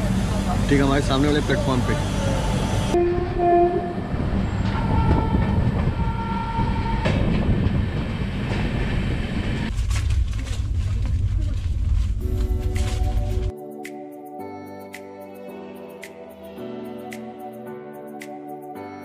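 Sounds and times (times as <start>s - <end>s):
train rumble and wheel clatter: 0.0s - 13.5s
rumble inside moving coach: 1.6s - 13.5s
train horn: 2.3s - 7.3s.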